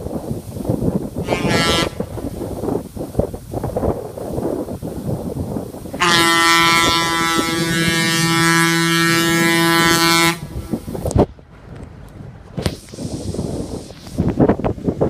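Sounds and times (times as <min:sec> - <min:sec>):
locomotive air horn blast: 0:01.2 - 0:02.4, 0:05.9 - 0:11.0.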